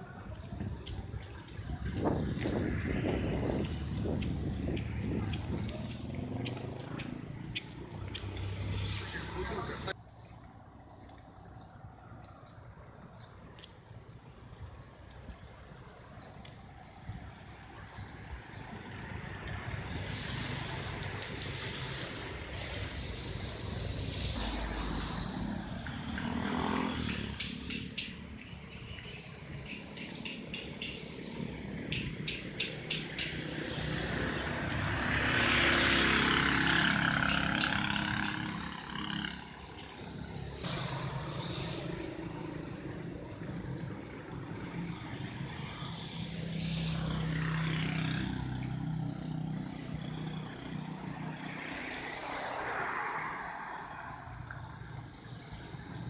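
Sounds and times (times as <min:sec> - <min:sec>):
traffic engines humming: 0:00.0 - 0:56.0
motor vehicle passing: 0:00.8 - 0:12.2, 0:18.6 - 0:28.7, 0:29.4 - 0:56.0
voices talking: 0:04.7 - 0:10.0
scattered clicks: 0:25.8 - 0:33.5.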